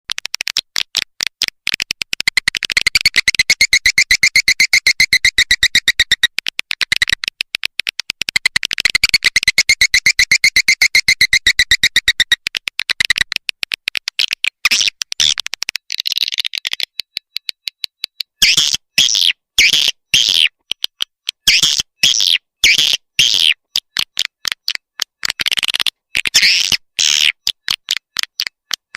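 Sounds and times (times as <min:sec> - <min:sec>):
swiftlet chirps and clicks: 0:01.7 - 0:19.3
loud squawking chirps: 0:02.9 - 0:06.3, 0:09.0 - 0:12.4, 0:18.4 - 0:20.5, 0:21.5 - 0:23.6, 0:26.3 - 0:27.4.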